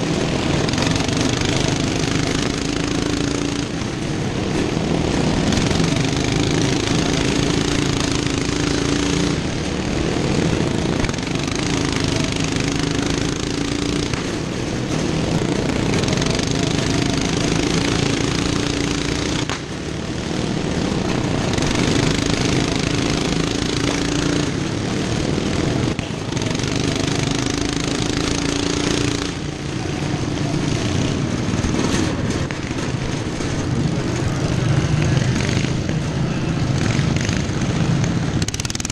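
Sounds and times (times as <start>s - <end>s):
racing lawn mower engines: 0.0s - 38.9s.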